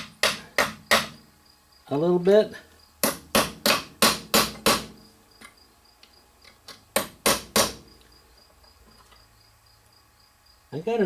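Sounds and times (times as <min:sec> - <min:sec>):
sharp knocks on metal cable end: 0:00.0 - 0:01.2, 0:03.0 - 0:05.6, 0:06.7 - 0:07.9.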